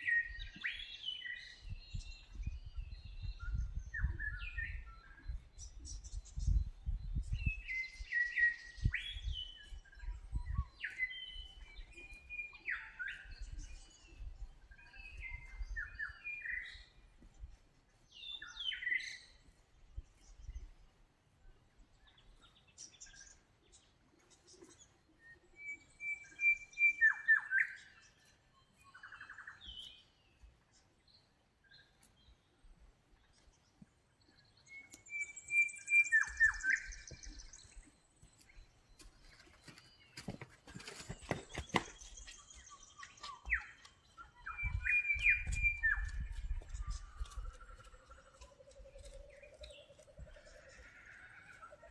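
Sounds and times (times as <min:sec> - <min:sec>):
birds singing whistled phrases: 0:00.0 - 0:17.0, 0:25.2 - 0:30.2, 0:34.4 - 0:40.0, 0:41.3 - 0:50.6.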